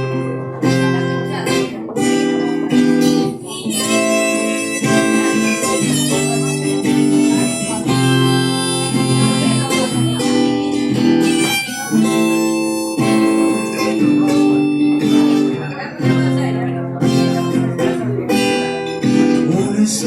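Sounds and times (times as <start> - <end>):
strummed acoustic guitar: 0.0 - 20.0
harmonica playing held notes: 2.0 - 15.9.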